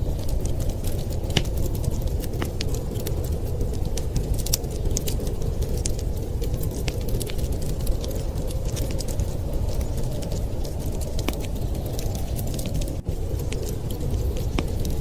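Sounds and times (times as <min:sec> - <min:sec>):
wind rushing: 0:00.0 - 0:15.0
wood fire crackling: 0:00.0 - 0:15.0.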